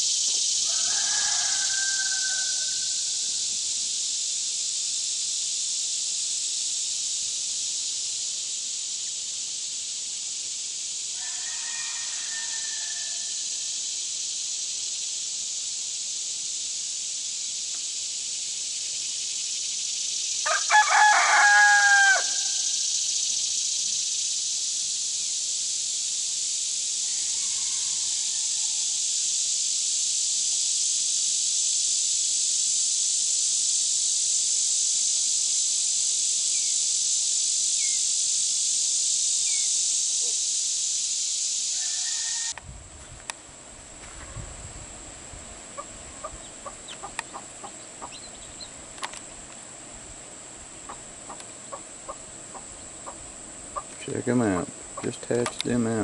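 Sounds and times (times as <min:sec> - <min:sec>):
steady high hiss: 0:00.0 - 0:56.0
rooster crowing: 0:00.6 - 0:03.3, 0:11.2 - 0:13.6, 0:20.4 - 0:22.7, 0:27.0 - 0:28.8, 0:41.8 - 0:42.6
chicken calls: 0:45.7 - 0:48.8, 0:50.8 - 0:55.4.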